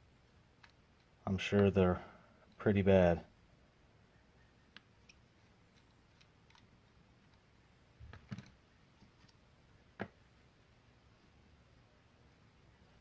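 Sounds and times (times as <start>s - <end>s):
faint clicks and taps: 0.5s - 1.7s, 4.7s - 9.4s.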